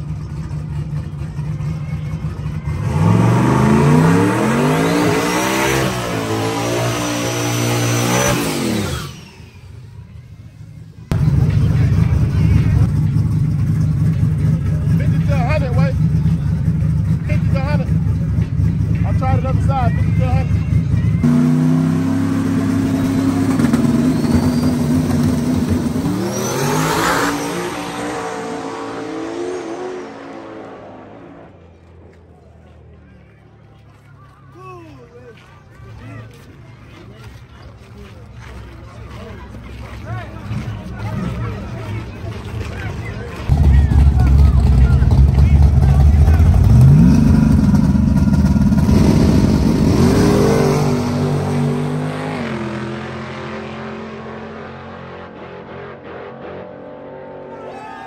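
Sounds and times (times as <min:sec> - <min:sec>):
race truck engine accelerating: 0:00.0 - 0:09.8, 0:11.1 - 0:32.1, 0:40.0 - 0:57.9.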